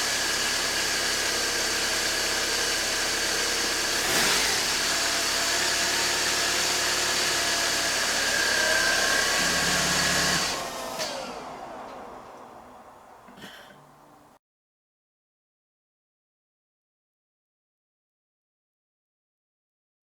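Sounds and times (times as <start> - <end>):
engine winding down: 0.0 - 14.4
car engine idling: 0.4 - 14.4.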